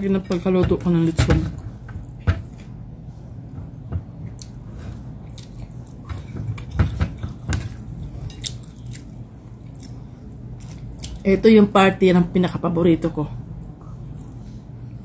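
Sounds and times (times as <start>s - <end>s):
wet chewing and biting: 4.2s - 11.2s.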